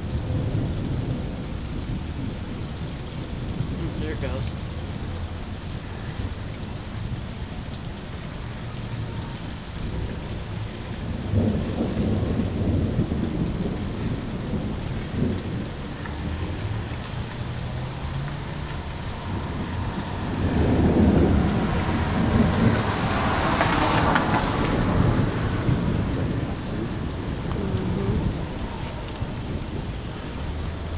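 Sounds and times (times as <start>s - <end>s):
rain hiss: 0.0s - 30.9s
thunder rumble: 0.0s - 30.9s.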